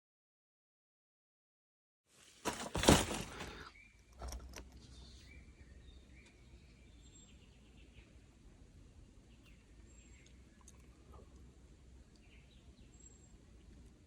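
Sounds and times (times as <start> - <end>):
faint bird chirps: 3.6 - 8.4, 9.0 - 14.0.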